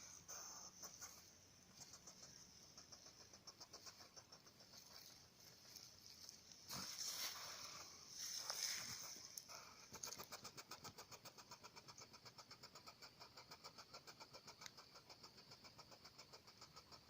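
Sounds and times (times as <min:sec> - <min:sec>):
hedgehog soft ticking: 0:00.0 - 0:06.8.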